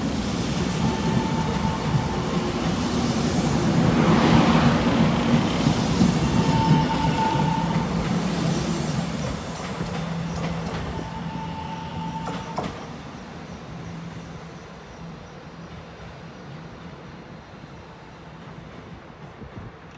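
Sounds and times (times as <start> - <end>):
train running past: 0.0 - 19.9
high wheel squeals: 6.2 - 8.0, 10.1 - 12.9.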